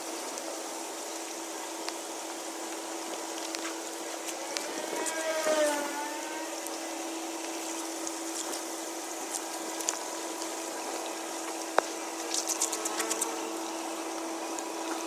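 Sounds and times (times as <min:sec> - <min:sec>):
constant hum: 0:00.0 - 0:15.0.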